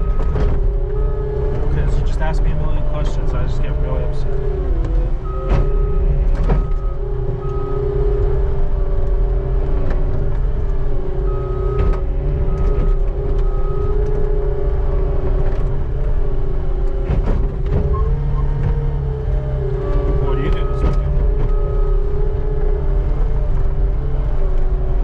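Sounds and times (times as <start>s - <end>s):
skid steer engine running: 0.0s - 25.0s.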